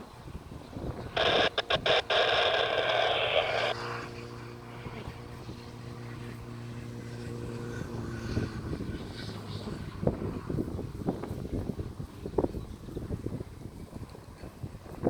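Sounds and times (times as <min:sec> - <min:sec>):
jet engines humming: 0:00.0 - 0:12.3
radio hiss: 0:00.8 - 0:04.2.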